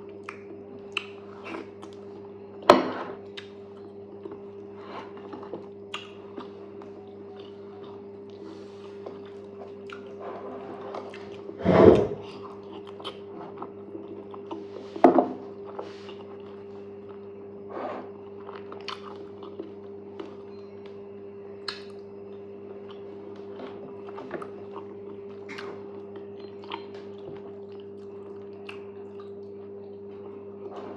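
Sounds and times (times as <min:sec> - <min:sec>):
person chewing wet mouth sounds: 0:00.2 - 0:02.2, 0:05.2 - 0:11.6, 0:12.2 - 0:14.8, 0:18.4 - 0:20.3, 0:24.0 - 0:30.4.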